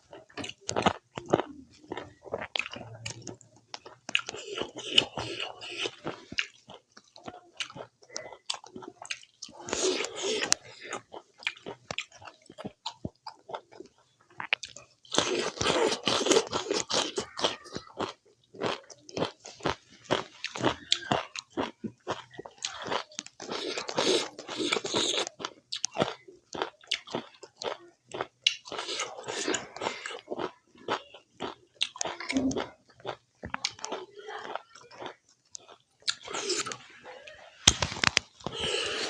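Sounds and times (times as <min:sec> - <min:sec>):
person chewing food: 0:00.0 - 0:39.0.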